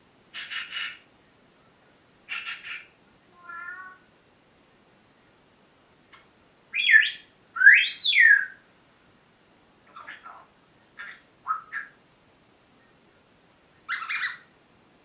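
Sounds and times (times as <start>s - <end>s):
parrot calling and whistling: 0.4s - 1.0s, 2.3s - 3.8s, 6.7s - 8.6s, 9.9s - 12.0s, 13.9s - 14.5s.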